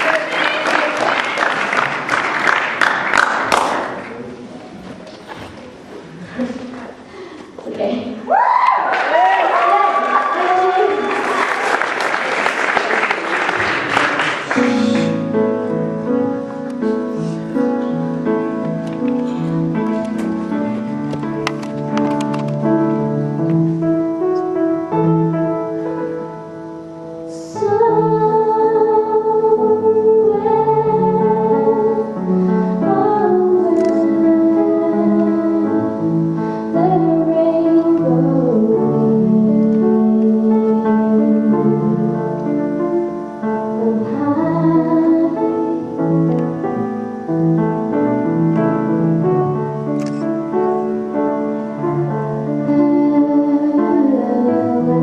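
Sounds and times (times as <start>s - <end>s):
keyboard accompaniment: 12.1s - 55.0s
woman singing: 27.3s - 32.2s, 32.8s - 36.1s, 36.7s - 42.2s, 43.7s - 46.0s, 52.5s - 55.0s.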